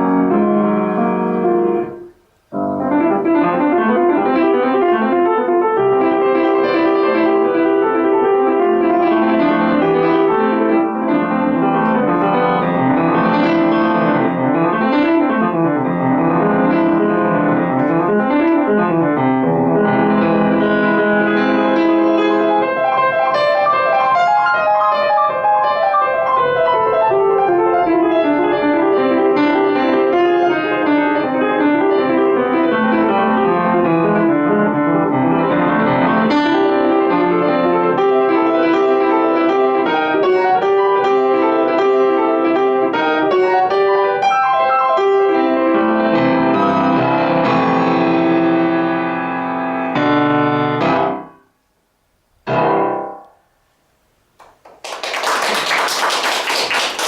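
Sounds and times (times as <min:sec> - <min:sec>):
solo piano classical piece: 0:00.0 - 0:54.6.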